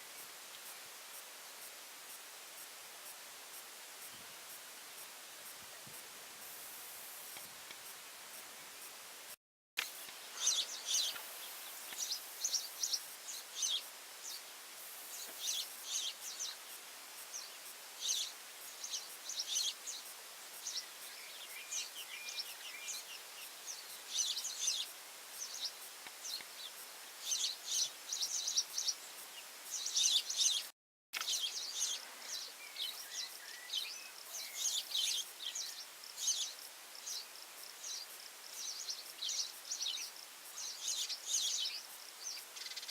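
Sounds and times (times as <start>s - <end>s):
faint steady hiss: 0.0s - 42.9s
birds chirping: 10.0s - 14.5s, 15.1s - 16.7s, 17.3s - 42.9s
lower bird calls: 10.2s - 14.4s.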